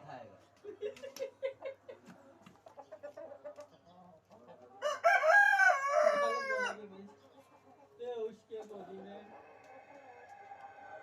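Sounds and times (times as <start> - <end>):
rooster crowing: 4.8 - 6.8.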